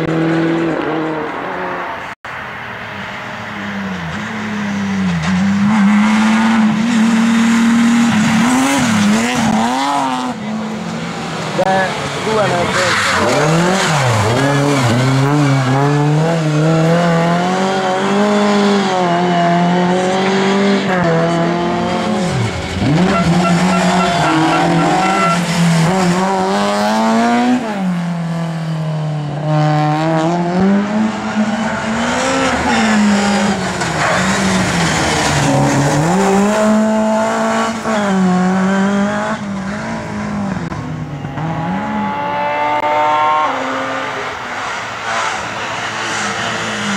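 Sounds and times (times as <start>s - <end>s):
rally car engines revving: 0.0s - 2.2s, 3.0s - 46.9s.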